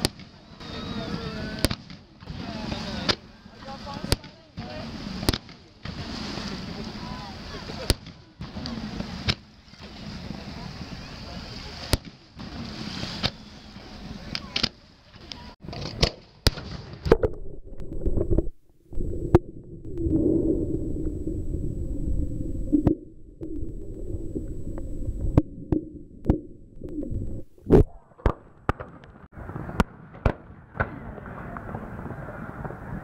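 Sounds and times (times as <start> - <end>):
fireworks booming: 15.6 - 33.0.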